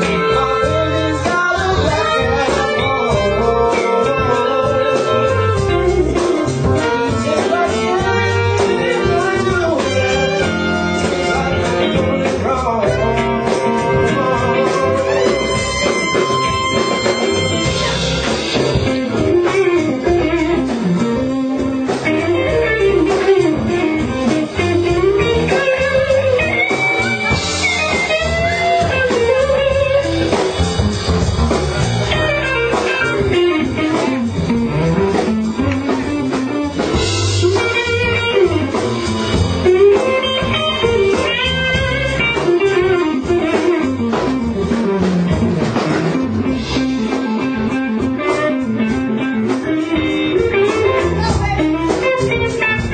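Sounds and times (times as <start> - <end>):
blues electric guitar: 0.0 - 52.9.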